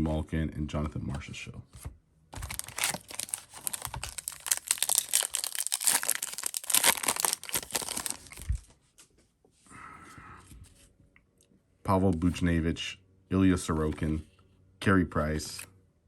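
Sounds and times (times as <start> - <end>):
wrapper tearing and crinkling: 2.4 - 8.7.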